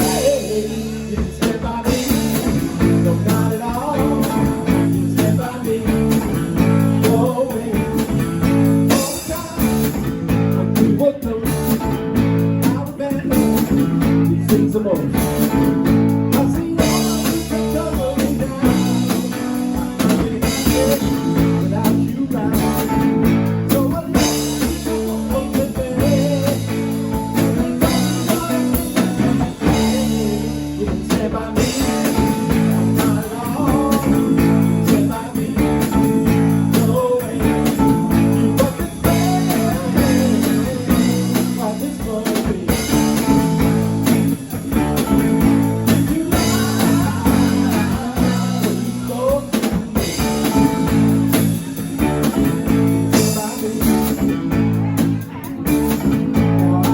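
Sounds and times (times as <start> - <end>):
person singing: 0.0 - 56.9
rock band playing: 0.0 - 56.9.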